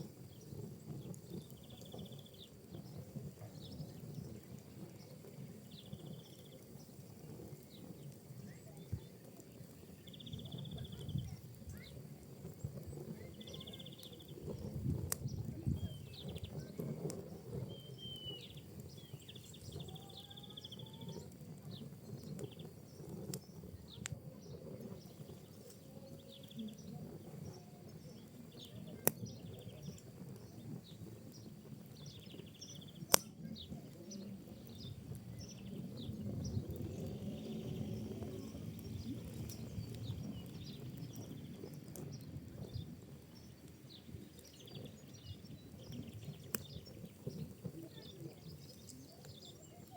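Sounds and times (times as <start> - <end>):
fire crackling: 0.0 - 49.9
sharp pops of fire: 0.0 - 49.9
faint rising whistles: 15.4 - 43.5.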